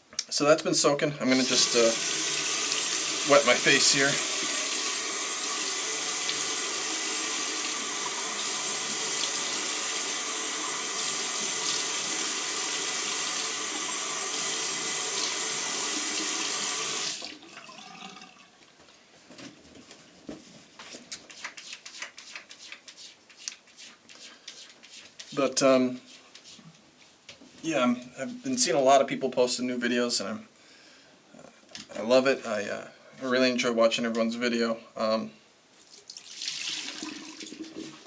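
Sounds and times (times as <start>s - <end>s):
sink tap running: 1.3s - 17.9s
person washing face: 1.3s - 18.2s, 21.1s - 25.4s, 35.8s - 38.0s.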